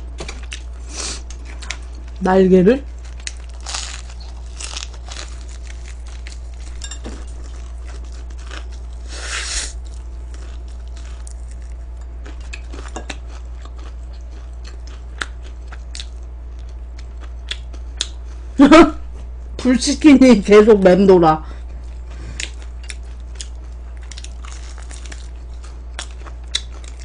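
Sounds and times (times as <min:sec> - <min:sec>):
crunchy chicken being chewed: 0:02.8 - 0:18.6, 0:21.7 - 0:27.0.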